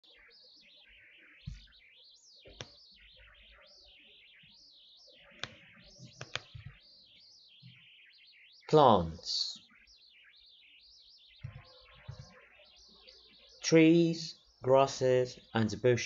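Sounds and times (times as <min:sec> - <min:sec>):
sharp clicks: 0:06.2 - 0:06.8.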